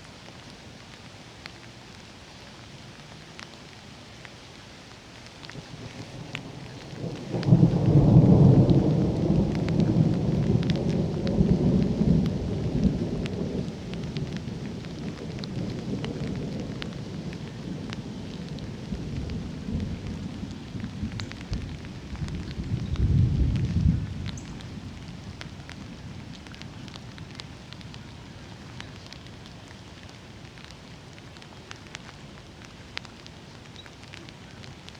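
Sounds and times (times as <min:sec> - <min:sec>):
raindrop ticks: 0:00.0 - 0:34.9
thunder rumbling: 0:05.7 - 0:28.3.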